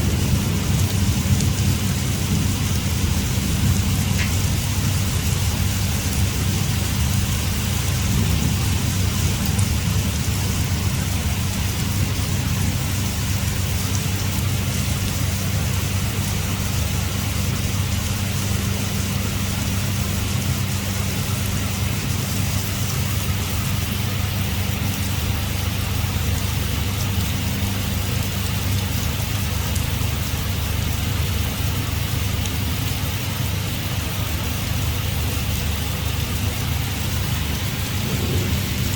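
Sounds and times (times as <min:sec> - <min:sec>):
heavy rain pouring: 0:00.0 - 0:38.9
low hum: 0:35.8 - 0:38.9.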